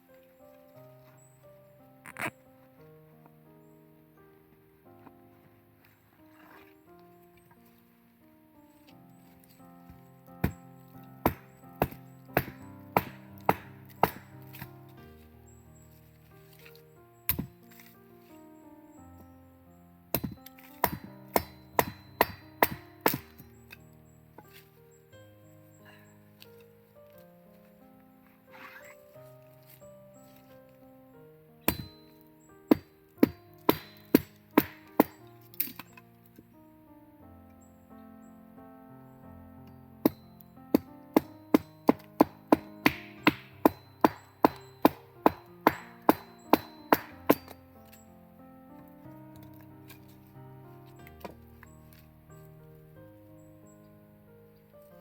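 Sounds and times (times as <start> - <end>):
quiet background music: 0.0 - 55.0
machete chopping wood: 11.2 - 14.8, 17.3 - 17.9, 20.1 - 23.5, 31.7 - 32.1, 32.7 - 35.8, 40.0 - 47.6.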